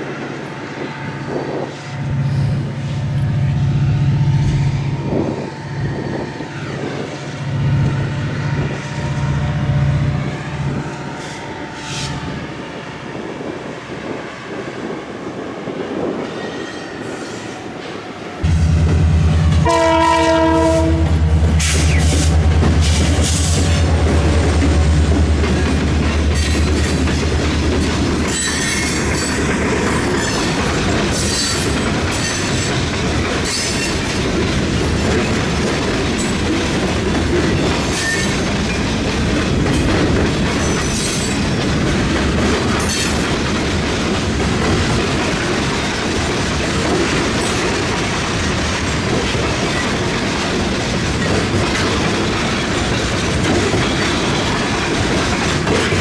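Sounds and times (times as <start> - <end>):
clickety-clack of train wheels: 4.4 - 56.0
high-pitched wheel squeals: 28.3 - 32.7.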